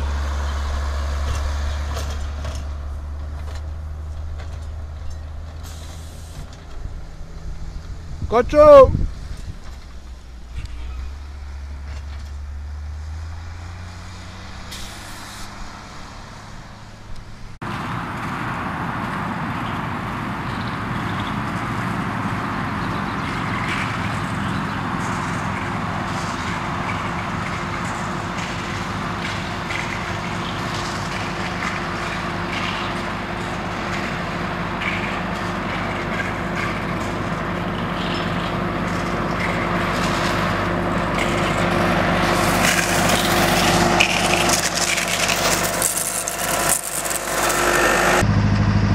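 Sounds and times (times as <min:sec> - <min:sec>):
heavy engine running: 0:00.0 - 0:48.9
machinery humming: 0:26.4 - 0:48.9.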